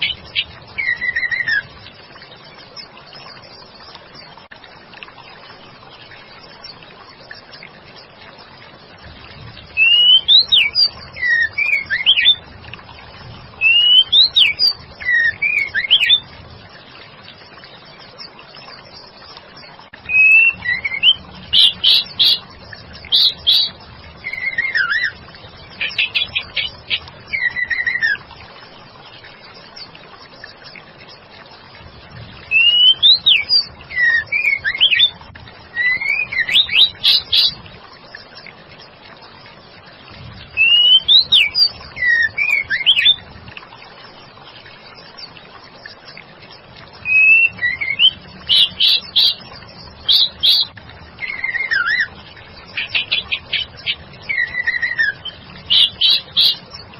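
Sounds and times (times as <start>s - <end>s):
bird whistling and chirping: 0.0s - 1.6s, 9.8s - 12.4s, 13.6s - 16.2s, 20.1s - 22.4s, 23.1s - 25.2s, 25.8s - 28.2s, 32.5s - 35.1s, 35.8s - 37.6s, 40.6s - 43.2s, 47.0s - 49.4s, 50.1s - 52.1s, 52.8s - 56.6s.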